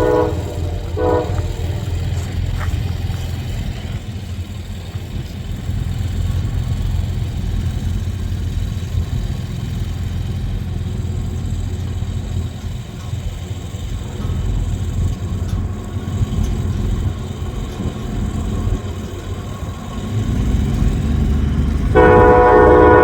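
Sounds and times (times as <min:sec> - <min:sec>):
train horn: 0:00.0 - 0:02.8, 0:21.8 - 0:23.0
diesel locomotive engine rumble: 0:00.0 - 0:23.0
rolling train noise: 0:00.0 - 0:23.0.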